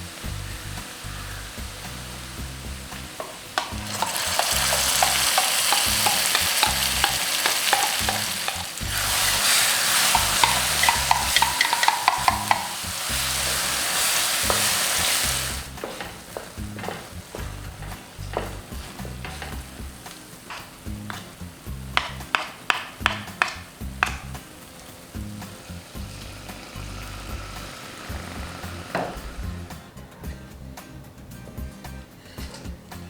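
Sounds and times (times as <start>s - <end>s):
food sizzling in hot oil: 0.0s - 29.8s
spoon scraping a pan: 3.2s - 24.3s.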